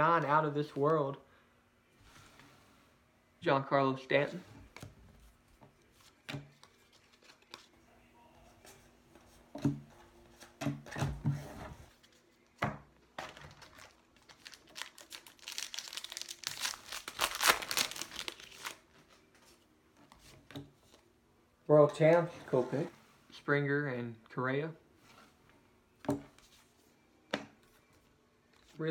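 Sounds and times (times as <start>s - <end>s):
wrapper crinkling and tearing: 13.2s - 19.0s.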